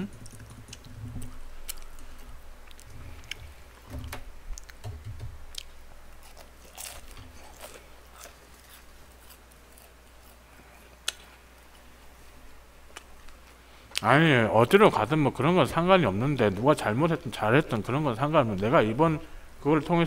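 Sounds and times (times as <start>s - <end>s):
person chewing fried chicken: 0.3s - 3.6s, 5.5s - 11.8s.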